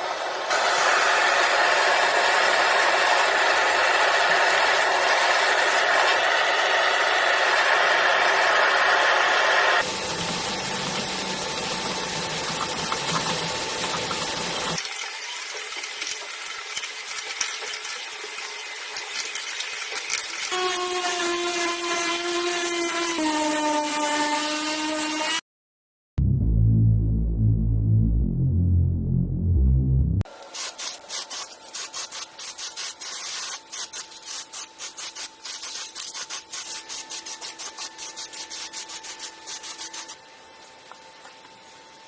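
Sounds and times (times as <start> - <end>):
power tool running: 0.0 - 17.4, 18.3 - 25.4.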